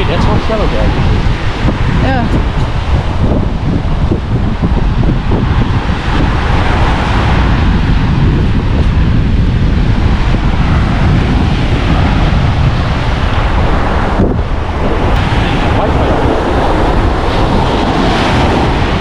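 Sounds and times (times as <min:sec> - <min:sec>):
sea waves washing on shore: 0:00.0 - 0:19.0
wind buffeting microphone: 0:00.0 - 0:19.0.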